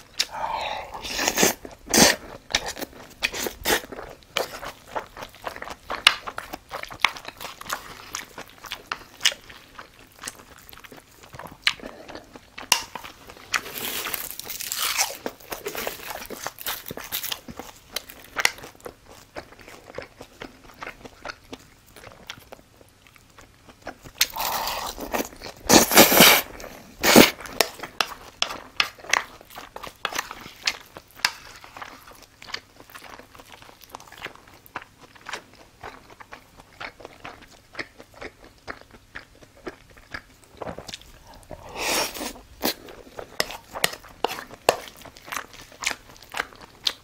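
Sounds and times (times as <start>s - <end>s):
food crackling and crunching: 0.0s - 47.0s
chewing and wet mouth smacking: 27.1s - 47.0s.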